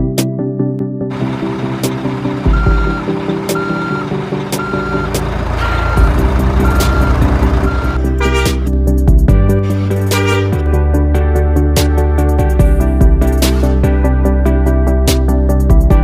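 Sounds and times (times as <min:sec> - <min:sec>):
truck reversing alarm beeping: 0:01.1 - 0:08.6
low engine rumble: 0:01.1 - 0:10.6.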